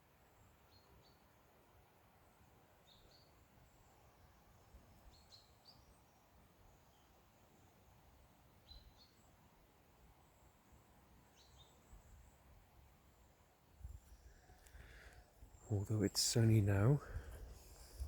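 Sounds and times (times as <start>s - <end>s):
faint woodland birdsong: 0.0s - 18.0s
low steady background hiss: 0.0s - 18.0s.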